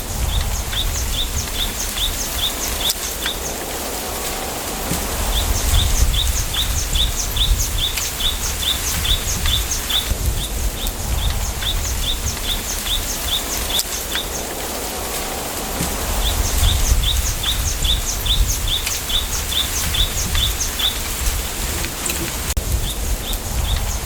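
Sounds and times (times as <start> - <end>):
low wind rumble: 0.0 - 24.0
small bird calling: 4.9 - 14.6.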